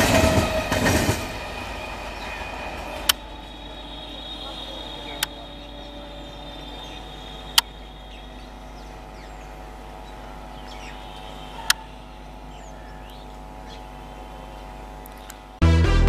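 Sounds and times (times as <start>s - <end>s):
birds chirping: 0.0s - 15.6s
electric train humming: 0.0s - 16.0s
sharp clicks: 5.0s - 5.5s, 6.8s - 9.2s, 15.0s - 15.4s.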